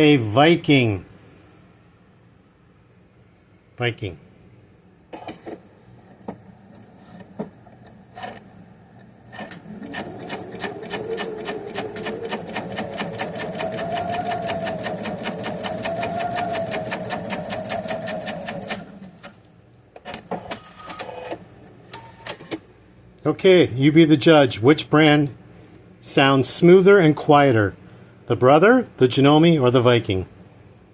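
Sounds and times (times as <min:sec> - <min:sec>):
sewing machine sewing: 0:08.1 - 0:08.4, 0:09.3 - 0:19.4.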